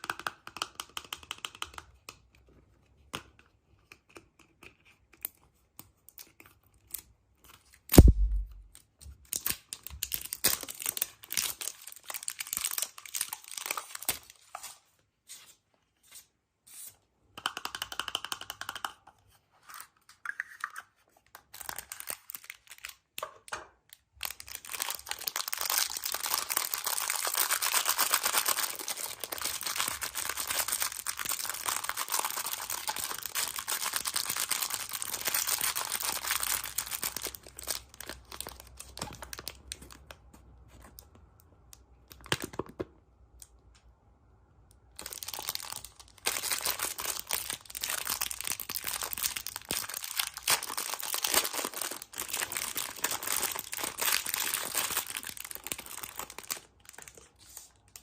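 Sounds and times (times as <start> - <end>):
wrapper crinkling: 9.3 - 14.8, 24.2 - 40.0, 45.0 - 58.0.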